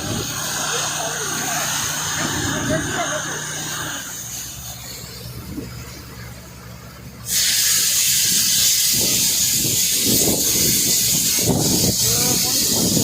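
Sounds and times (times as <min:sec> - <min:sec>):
faint voices talking: 0:00.0 - 0:07.2, 0:11.8 - 0:13.0
water gushing under pressure: 0:07.3 - 0:13.0.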